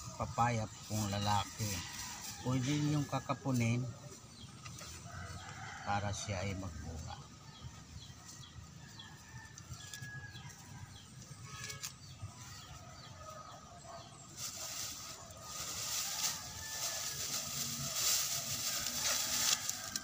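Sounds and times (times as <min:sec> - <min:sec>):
hissy rustle: 0:14.2 - 0:20.0.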